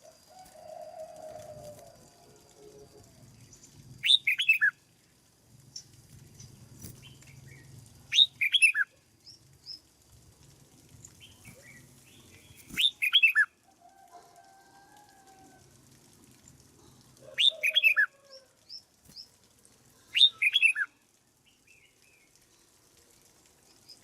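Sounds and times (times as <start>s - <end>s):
bird singing whistled phrases: 4.0s - 4.8s, 12.8s - 13.5s, 17.4s - 18.1s, 20.1s - 20.9s
soft bird chirps: 20.0s - 22.8s.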